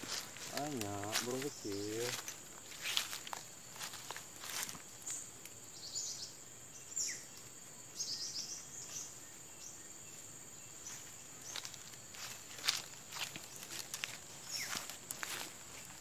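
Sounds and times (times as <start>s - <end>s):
high-pitched insect drone: 0.0s - 7.3s
small birds chirping: 0.0s - 16.0s.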